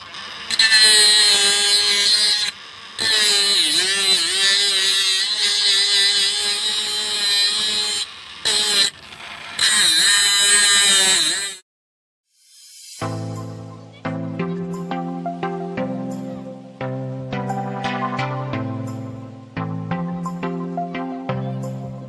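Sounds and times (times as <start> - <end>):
hand grinder motor whining: 0.0 - 11.6.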